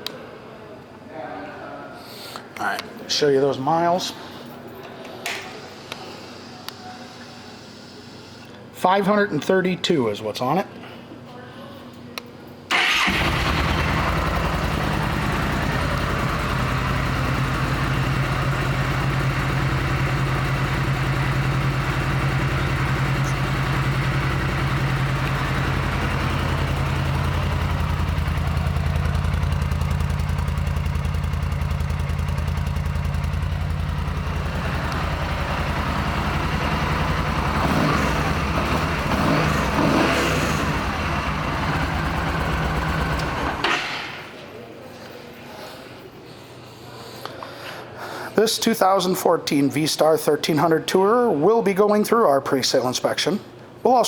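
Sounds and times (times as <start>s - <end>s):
motorcycle engine idling: 12.8s - 43.6s.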